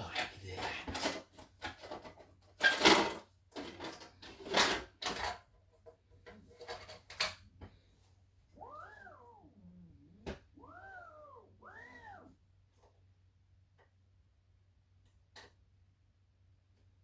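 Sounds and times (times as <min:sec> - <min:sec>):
rustling and knocking of handled things: 0:00.0 - 0:07.8
cat meowing: 0:08.6 - 0:12.4.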